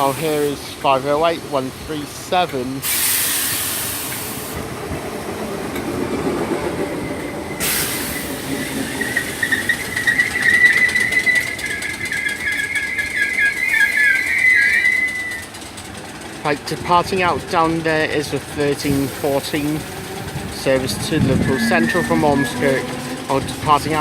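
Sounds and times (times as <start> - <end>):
train brakes squealing: 2.8 - 4.6, 6.9 - 15.6, 18.8 - 24.0
air hiss: 2.8 - 4.7, 7.6 - 9.6.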